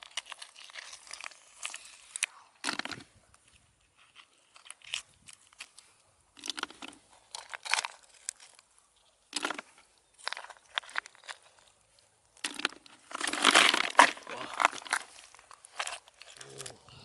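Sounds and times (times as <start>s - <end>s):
crunching and crinkling: 0.0s - 17.0s.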